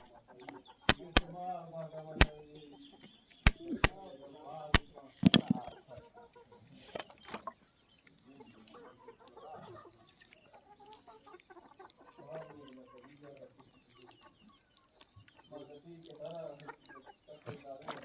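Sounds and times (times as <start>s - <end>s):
sharp clicks: 0.0s - 1.4s, 2.2s - 2.4s, 3.0s - 4.0s, 4.7s - 5.7s
faint animal calls: 0.0s - 18.0s.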